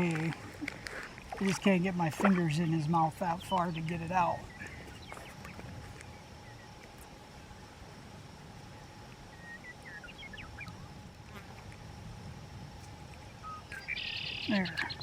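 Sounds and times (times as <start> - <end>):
faint insect drone: 0.0 - 15.0
low wind rumble: 0.0 - 15.0
short bird chirps: 13.4 - 15.0.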